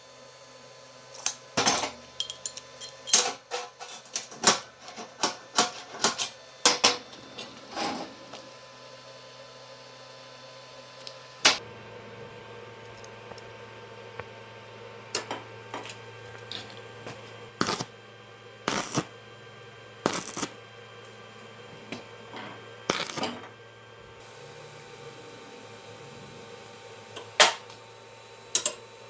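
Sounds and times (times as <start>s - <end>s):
metal parts clinking and knocking: 1.2s - 7.0s, 17.6s - 17.9s, 18.7s - 19.1s, 20.1s - 20.5s, 22.9s - 23.4s, 28.6s - 28.8s
steady low hum: 20.0s - 27.9s.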